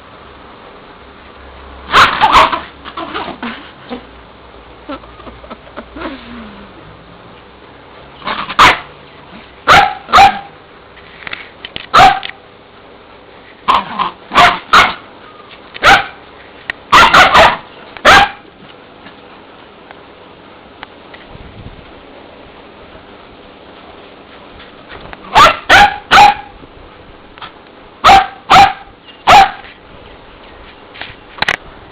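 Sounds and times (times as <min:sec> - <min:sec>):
dogs barking: 0:01.9 - 0:03.4, 0:08.2 - 0:10.6, 0:11.9 - 0:12.4, 0:13.7 - 0:15.1, 0:15.8 - 0:16.2, 0:16.9 - 0:18.5, 0:25.3 - 0:26.6, 0:28.0 - 0:29.8.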